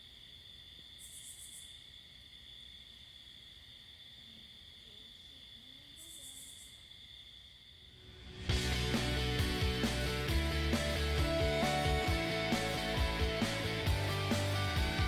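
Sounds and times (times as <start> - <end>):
crickets trilling: 0.0 - 8.4.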